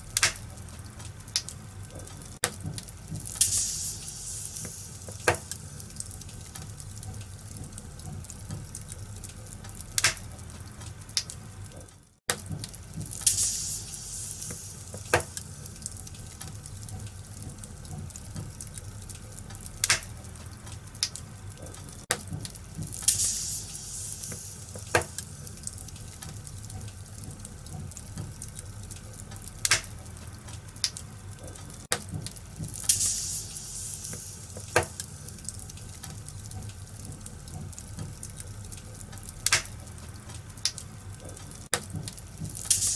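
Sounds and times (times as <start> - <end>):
fireplace fire crackling: 0.0 - 42.9.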